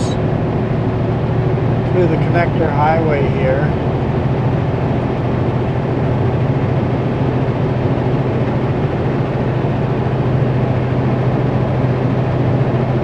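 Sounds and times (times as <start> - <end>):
road noise: 0.0 - 7.0
truck diesel engine droning: 0.0 - 12.0.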